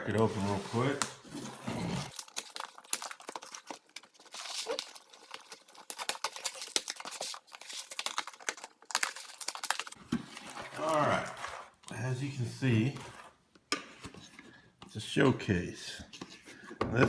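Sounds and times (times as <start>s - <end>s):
package tearing and crinkling: 0.2s - 11.6s.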